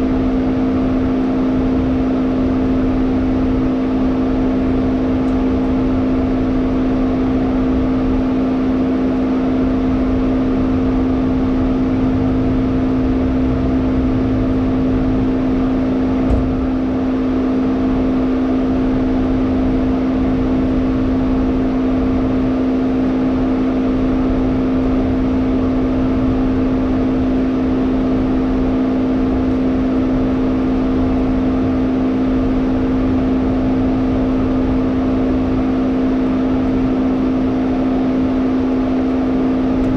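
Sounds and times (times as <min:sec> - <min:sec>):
car engine drone in cabin: 0:00.0 - 0:39.9
road noise: 0:11.0 - 0:17.0
brief knock: 0:16.2 - 0:16.6.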